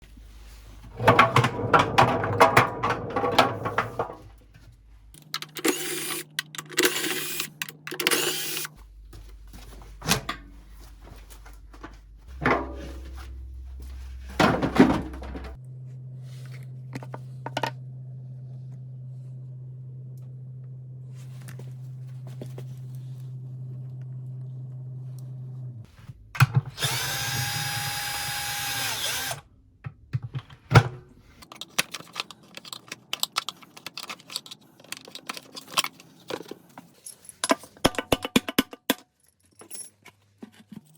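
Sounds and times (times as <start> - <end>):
low steady hum: 0.0 - 27.2
metal clattering: 0.9 - 4.4, 12.3 - 15.6.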